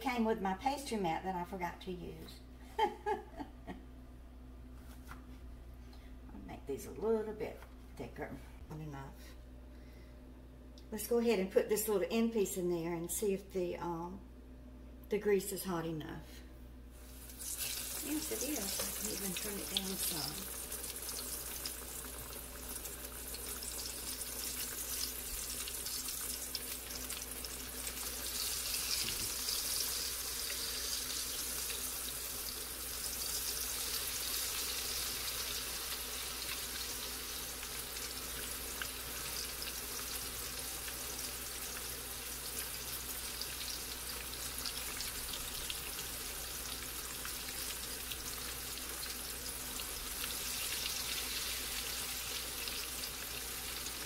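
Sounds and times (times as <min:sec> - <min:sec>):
dough frying in hot oil: 0:17.0 - 0:54.0.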